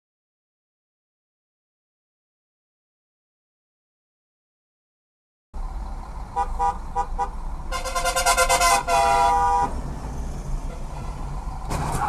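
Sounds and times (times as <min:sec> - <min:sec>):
road and engine noise: 0:05.6 - 0:12.0
car horn honking: 0:06.4 - 0:09.7, 0:10.7 - 0:11.3.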